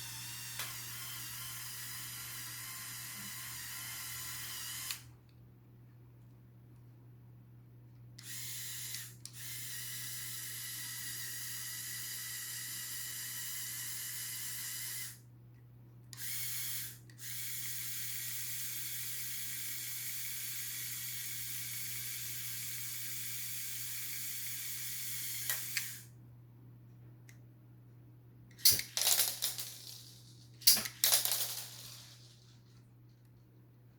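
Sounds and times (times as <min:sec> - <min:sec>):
small electric motor whirring: 0:00.0 - 0:05.1, 0:08.2 - 0:15.2, 0:16.2 - 0:26.1.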